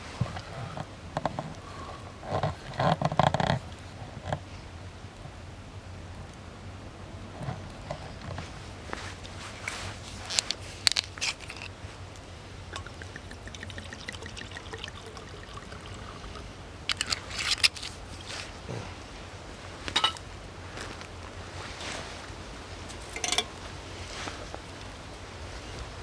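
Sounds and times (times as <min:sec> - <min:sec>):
liquid pouring into a cup: 0:12.7 - 0:17.1.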